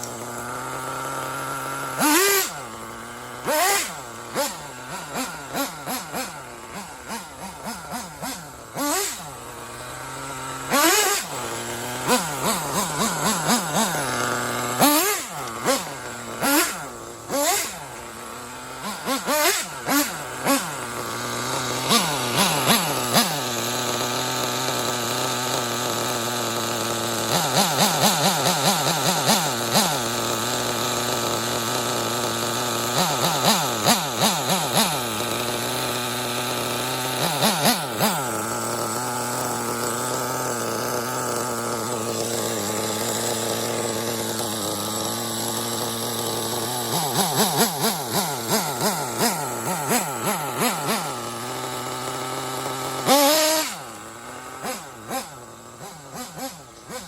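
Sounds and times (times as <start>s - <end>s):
model engine idling and revving: 0.0s - 57.0s.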